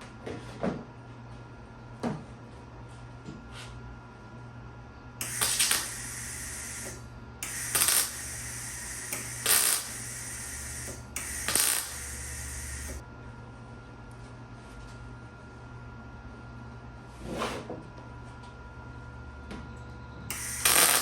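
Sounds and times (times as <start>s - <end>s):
welding arc crackling and sizzling: 5.2s - 13.0s, 20.3s - 21.0s.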